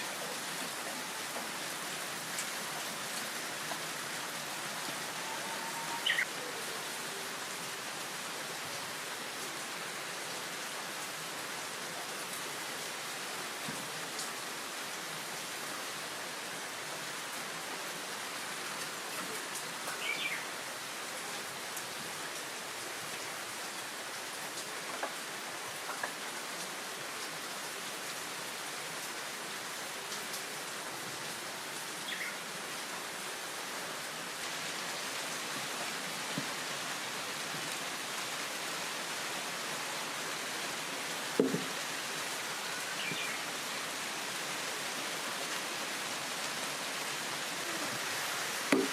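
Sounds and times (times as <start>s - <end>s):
heavy rain: 0.0s - 48.9s
bird calling: 5.1s - 6.6s
sharp knock: 41.4s - 41.7s.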